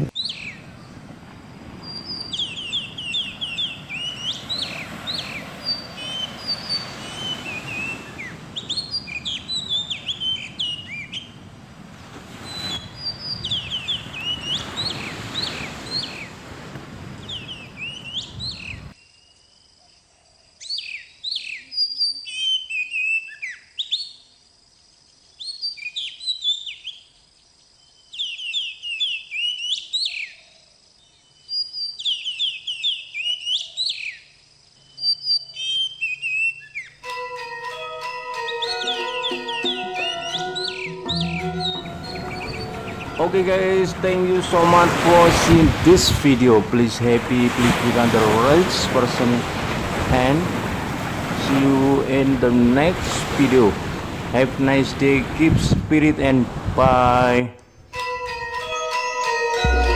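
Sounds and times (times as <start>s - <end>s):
surf and wind rushing: 0.0s - 19.0s, 38.9s - 57.5s
birds chirping and whistling: 0.2s - 0.6s, 1.8s - 11.4s, 12.3s - 16.4s, 17.2s - 18.9s, 34.8s - 37.0s, 38.4s - 45.9s.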